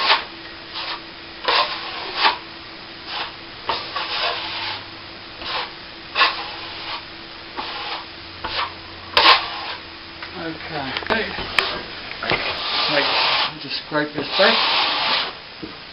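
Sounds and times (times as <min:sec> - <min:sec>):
trowel scraping cement: 0:00.0 - 0:00.2, 0:00.8 - 0:02.4, 0:03.1 - 0:04.8, 0:05.4 - 0:07.0, 0:07.6 - 0:09.8, 0:11.6 - 0:13.6, 0:14.2 - 0:15.3.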